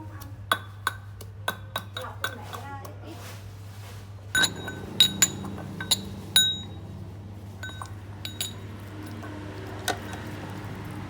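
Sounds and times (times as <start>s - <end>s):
utensil clinking against bowl: 0.5s - 2.7s, 4.4s - 6.9s, 7.6s - 10.9s
faint steady hum: 4.2s - 9.2s.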